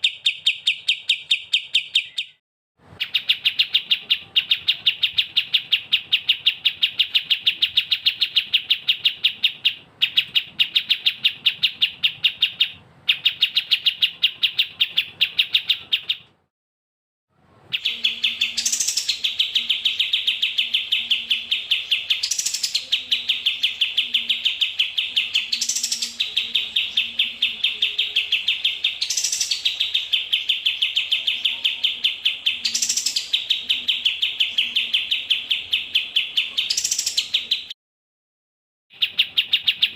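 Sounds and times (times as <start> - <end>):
songbird high chirps: 0.0 - 2.4, 3.0 - 16.3, 17.6 - 37.8, 38.9 - 39.9
rising sweep birdcall: 17.6 - 37.8.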